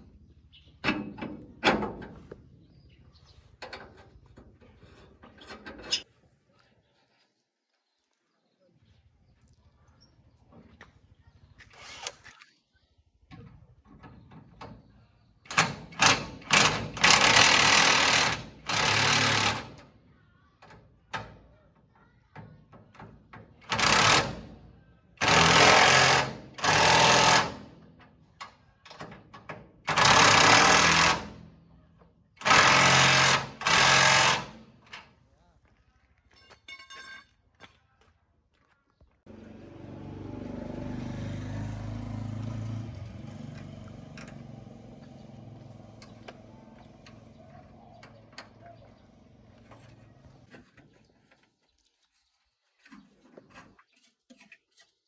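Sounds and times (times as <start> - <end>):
power tool running: 15.5 - 19.8, 23.6 - 24.4, 25.2 - 27.7, 29.9 - 31.4, 32.4 - 34.6.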